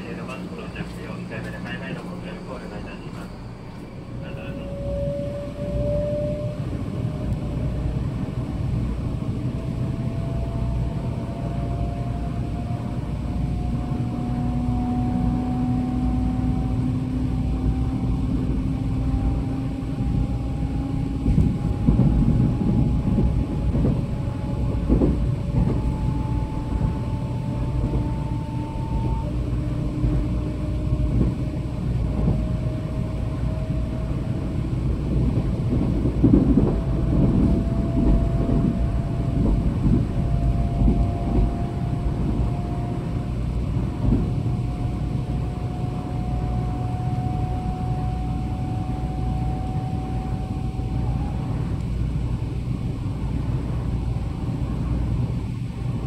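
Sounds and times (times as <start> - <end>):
train motor whine rising: 0.0 - 8.4
low train rumble: 0.0 - 56.0.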